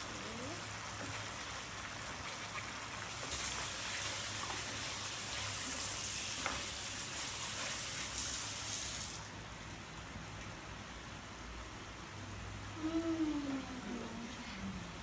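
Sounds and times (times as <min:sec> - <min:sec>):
paste sizzling in oil: 0:00.8 - 0:09.3.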